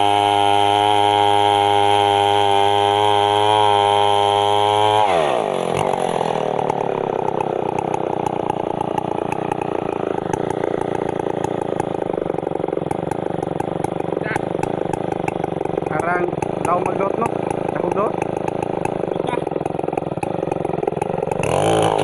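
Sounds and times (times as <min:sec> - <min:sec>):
chainsaw engine revving and idling: 0:00.0 - 0:22.0.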